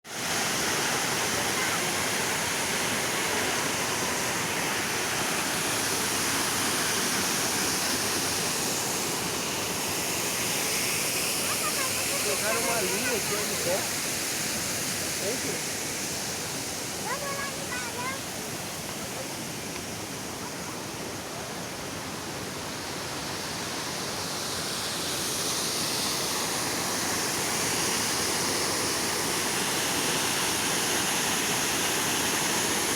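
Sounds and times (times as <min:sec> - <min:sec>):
falling water rushing: 0:00.1 - 0:32.9.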